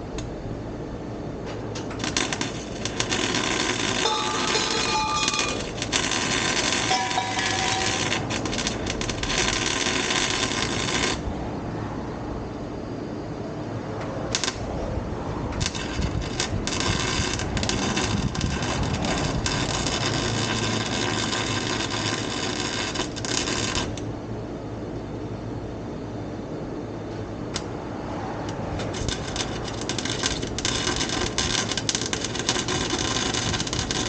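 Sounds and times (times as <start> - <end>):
steady low hum: 0.0 - 34.0
arc welder crackling: 1.4 - 11.5, 14.2 - 24.2, 27.5 - 34.0.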